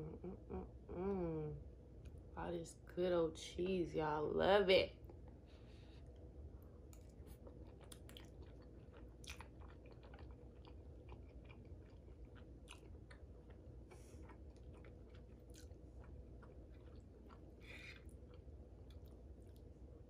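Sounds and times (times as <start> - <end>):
person chewing food: 5.0 - 20.0.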